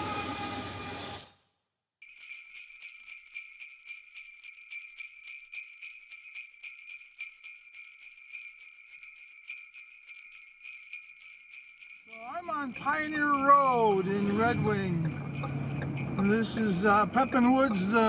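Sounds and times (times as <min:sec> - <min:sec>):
train: 0:00.0 - 0:01.4, 0:12.4 - 0:18.0
sleigh bells jingling: 0:02.0 - 0:18.0.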